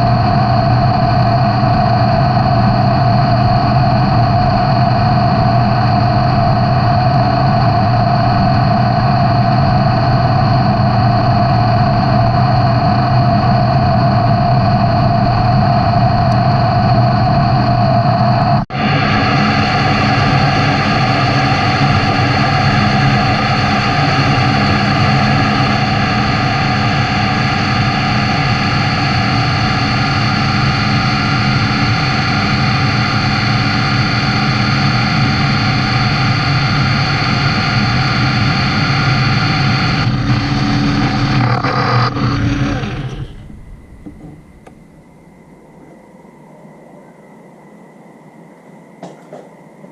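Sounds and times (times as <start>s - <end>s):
metal lathe running: 18.7s - 45.8s.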